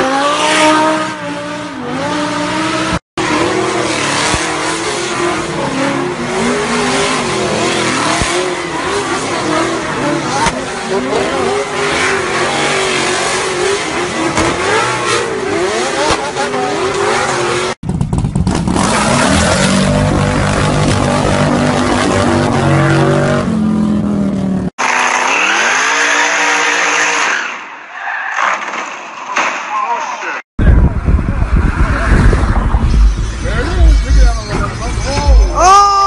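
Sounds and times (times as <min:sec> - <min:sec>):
car engine revving: 0:00.0 - 0:27.3, 0:30.6 - 0:35.6
car engines revving: 0:00.0 - 0:27.7, 0:30.6 - 0:35.7.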